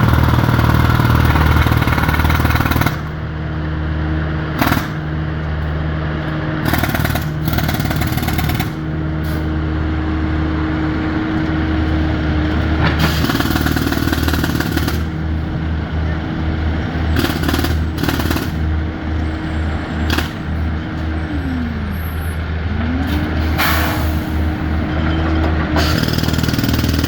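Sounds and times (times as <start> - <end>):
machinery engine hum: 0.0 - 27.0
loud noisy power tool: 25.8 - 27.0.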